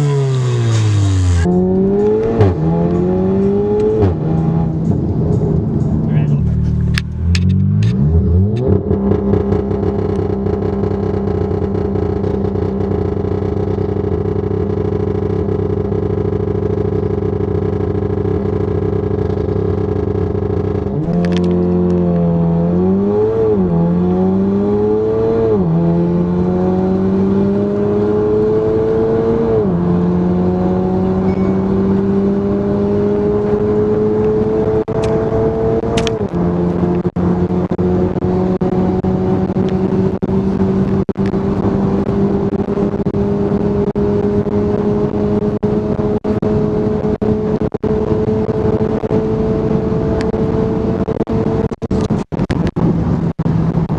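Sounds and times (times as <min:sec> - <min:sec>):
car exhaust accelerating through gears: 0:00.0 - 0:53.9.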